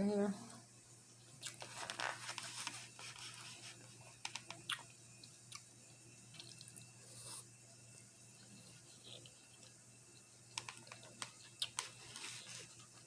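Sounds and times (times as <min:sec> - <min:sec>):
person chewing food: 0:01.3 - 0:05.7, 0:08.4 - 0:09.8, 0:10.5 - 0:13.0
wet mouth clicks and smacks: 0:04.3 - 0:04.9.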